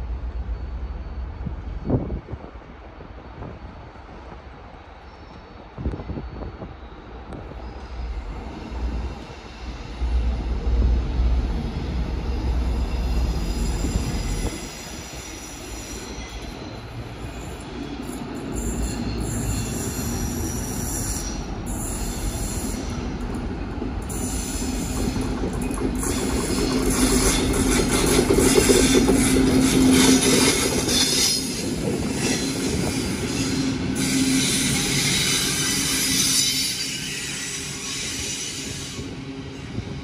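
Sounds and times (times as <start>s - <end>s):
train rumbling past: 0.0s - 40.0s
wheel squeal: 12.3s - 23.0s.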